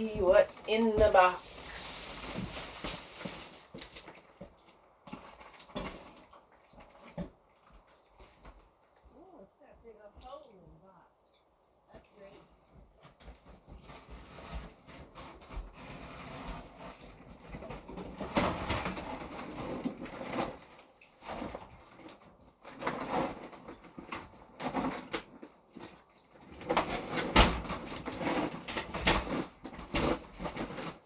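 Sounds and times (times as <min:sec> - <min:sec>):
scuffing and rustling: 0:00.0 - 0:04.2.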